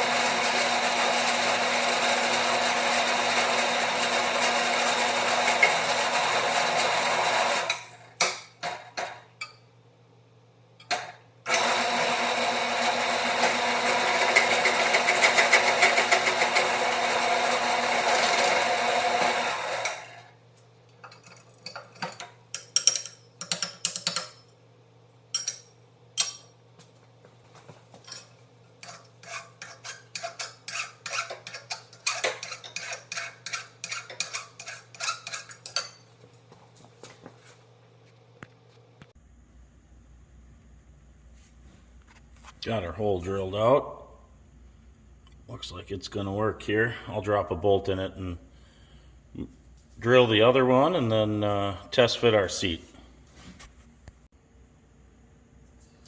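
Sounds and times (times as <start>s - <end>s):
electric drill drilling metal: 0.0s - 8.0s, 11.5s - 20.2s.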